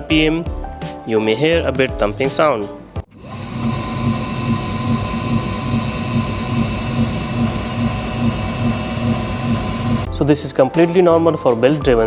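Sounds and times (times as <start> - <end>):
pottery wheel motor hum: 3.1 - 10.1.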